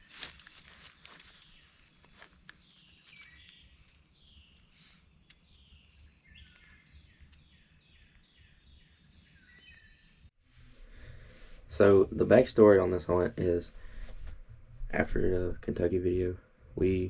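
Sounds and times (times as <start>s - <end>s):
songbirds whistling: 0.8s - 10.3s.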